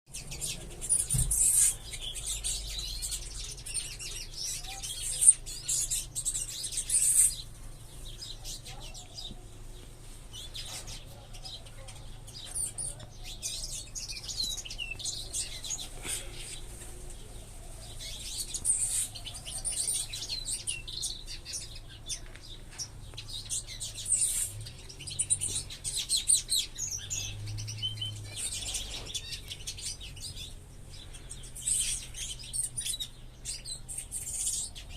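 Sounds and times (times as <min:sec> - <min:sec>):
small birds chirping and twittering: 0:00.1 - 0:34.9.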